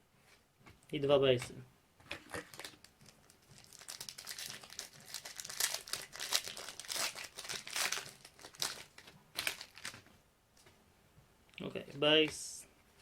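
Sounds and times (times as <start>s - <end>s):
wrapper crinkling and tearing: 2.3s - 10.0s.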